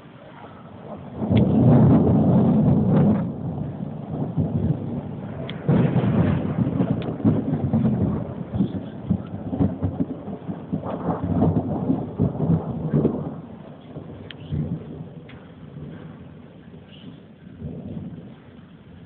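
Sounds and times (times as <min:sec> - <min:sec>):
rain: 0:00.0 - 0:19.0
thunder rumbling: 0:00.0 - 0:19.0.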